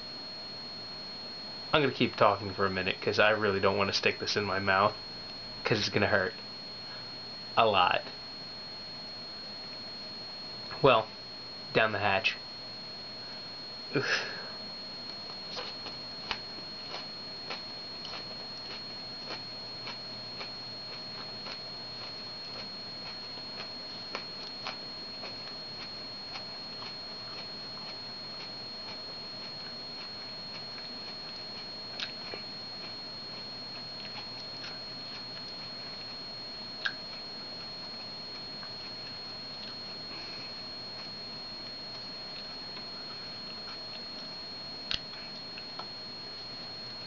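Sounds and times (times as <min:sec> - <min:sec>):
faint hiss with high whine: 0:00.0 - 0:47.0
person chewing wet mouth clicks: 0:32.0 - 0:32.2, 0:36.8 - 0:37.0.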